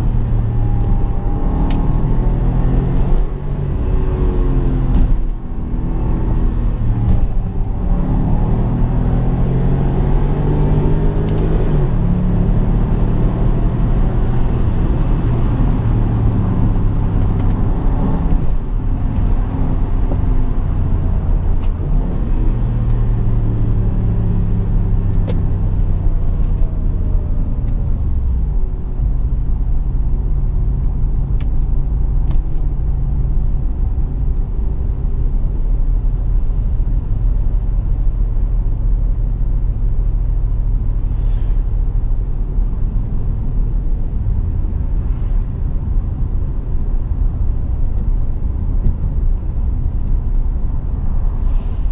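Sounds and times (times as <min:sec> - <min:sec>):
car engine drone: 0:00.0 - 0:51.9
road rumble: 0:00.0 - 0:51.9.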